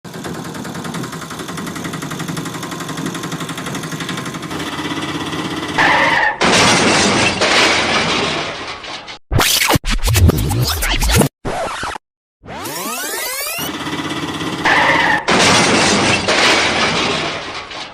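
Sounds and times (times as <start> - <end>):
engine running: 0.1 - 5.8, 12.6 - 14.7
loud crash with shattering: 6.4 - 9.2, 15.0 - 17.9.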